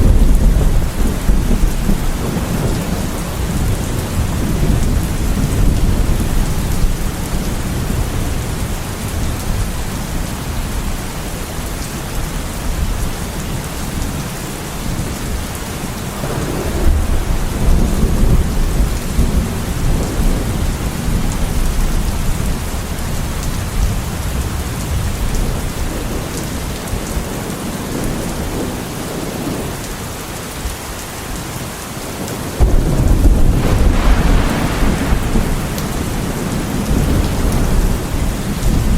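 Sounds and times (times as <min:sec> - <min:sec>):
thunder rumbling: 0:00.0 - 0:10.6, 0:16.2 - 0:26.8, 0:32.2 - 0:38.9
heavy rain falling: 0:00.0 - 0:38.9.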